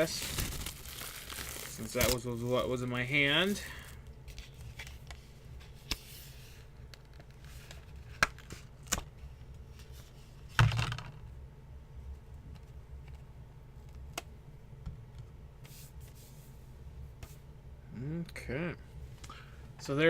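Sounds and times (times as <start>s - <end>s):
packaging rustle: 0.0s - 2.6s.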